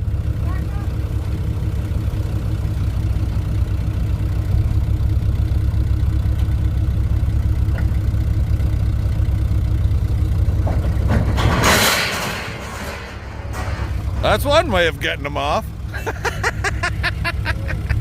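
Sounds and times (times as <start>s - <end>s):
tractor engine running under load: 0.0s - 18.0s
steel pipe scraping along deck: 10.8s - 14.5s
loud crash of steel pipe: 11.0s - 14.2s.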